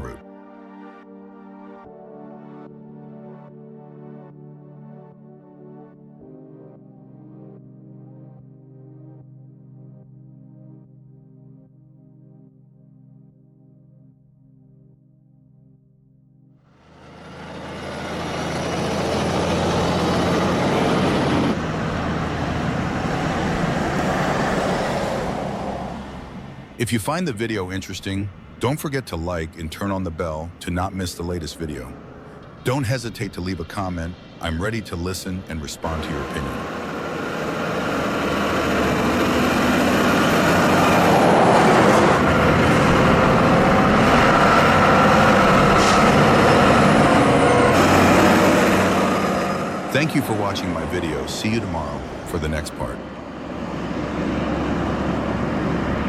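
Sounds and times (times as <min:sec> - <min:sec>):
road traffic noise: 0:00.0 - 0:00.2, 0:16.7 - 0:56.0
truck engine running: 0:16.8 - 0:56.0.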